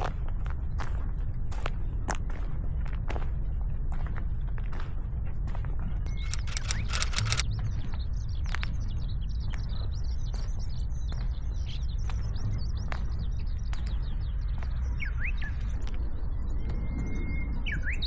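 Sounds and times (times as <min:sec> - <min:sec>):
sharp clicks: 0:06.2 - 0:07.4.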